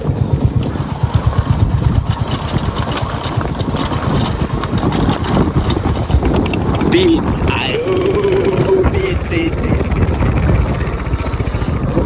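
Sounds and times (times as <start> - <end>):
motorcycle engine running: 0.0 - 12.0
crackling clicks: 0.4 - 7.5.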